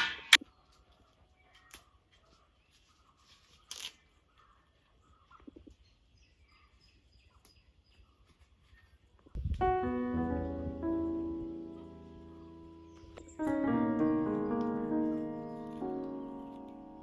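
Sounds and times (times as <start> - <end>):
faint birds chirping: 0.4 - 17.0
piano music: 9.4 - 17.0.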